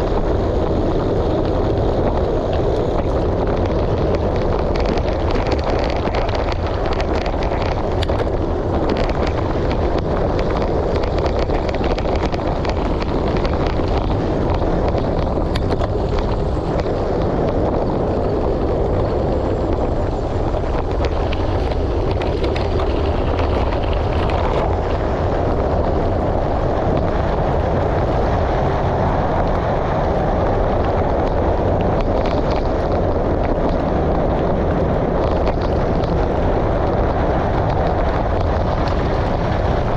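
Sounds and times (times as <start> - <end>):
tyres rolling on gravel: 0.0 - 39.9
wind buffeting microphone: 0.0 - 39.9
clicks of loose stones: 2.0 - 18.0, 31.2 - 33.8, 35.2 - 36.2.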